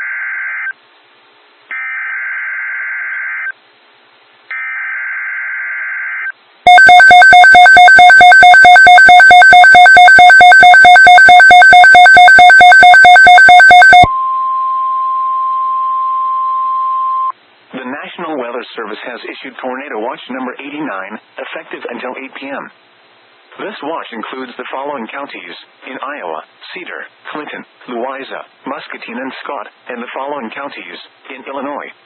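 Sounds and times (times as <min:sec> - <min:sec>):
pulsing electronic alert tone: 0:06.7 - 0:14.1
raspy digital data bursts: 0:06.7 - 0:14.1
steady single-pitch alarm tone: 0:06.7 - 0:17.3.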